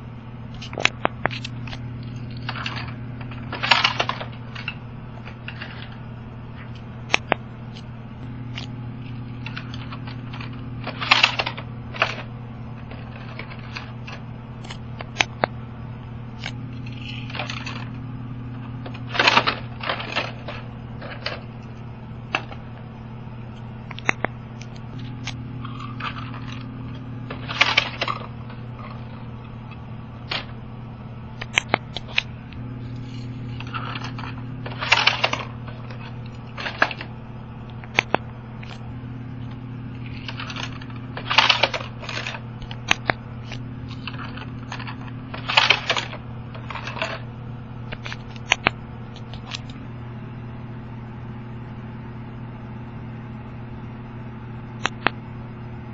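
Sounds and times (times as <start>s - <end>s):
steady low hum: 0.0s - 55.9s
toy cars clicking and rattling: 2.3s - 6.0s, 9.4s - 14.2s, 16.8s - 17.9s, 18.9s - 21.5s, 25.7s - 29.2s, 33.0s - 37.1s, 40.0s - 47.2s.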